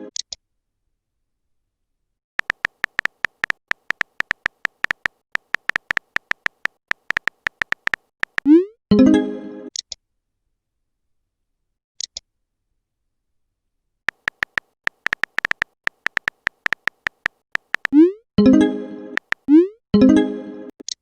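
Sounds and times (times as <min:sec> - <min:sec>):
phone keyboard clicking taps: 0:02.4 - 0:08.5, 0:14.1 - 0:18.0, 0:19.2 - 0:19.5.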